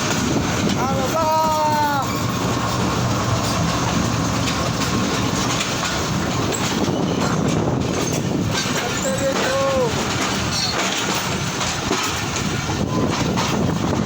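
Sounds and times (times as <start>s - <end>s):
train wheels rumbling and clattering: 0.0s - 14.0s
pitched squeal: 1.7s - 7.5s.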